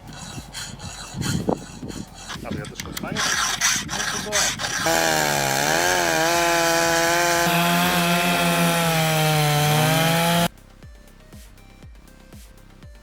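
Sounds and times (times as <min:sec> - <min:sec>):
chainsaw cutting tree: 0:00.0 - 0:10.5
faint steady beat: 0:10.1 - 0:13.0.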